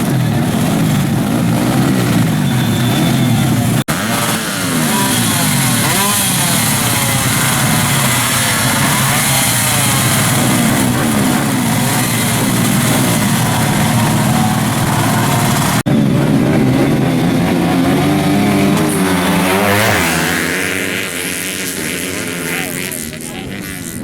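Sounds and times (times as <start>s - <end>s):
motorcycle engines revving: 0.0s - 24.0s.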